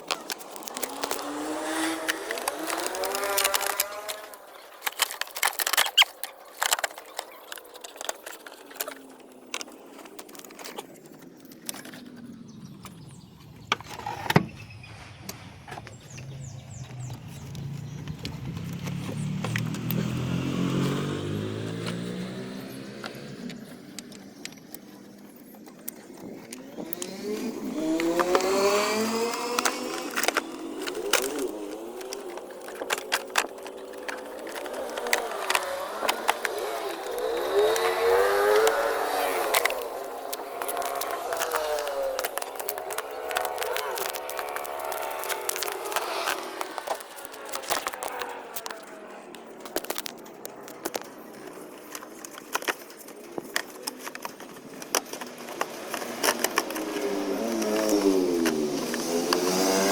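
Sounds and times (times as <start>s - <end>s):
sharp clicks: 0.0s - 59.8s
car engine revving: 0.1s - 4.4s, 12.4s - 24.3s, 26.6s - 50.1s, 54.9s - 59.9s.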